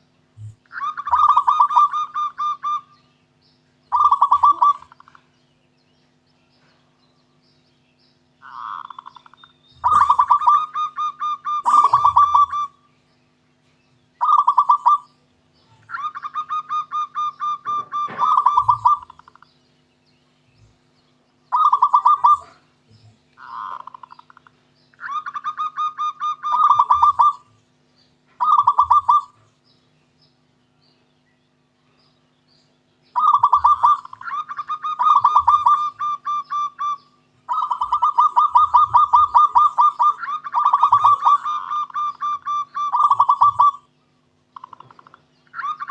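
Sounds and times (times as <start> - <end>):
dove cooing in staccato notes: 0.0 - 5.3, 8.4 - 12.9, 13.6 - 19.6, 21.5 - 27.6, 28.2 - 29.6, 33.1 - 45.9.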